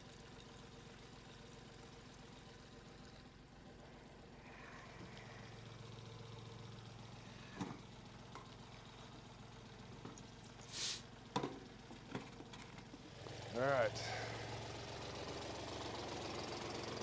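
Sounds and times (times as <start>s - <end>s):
tractor engine idling: 0.4s - 17.0s
brief hiss: 10.6s - 11.1s.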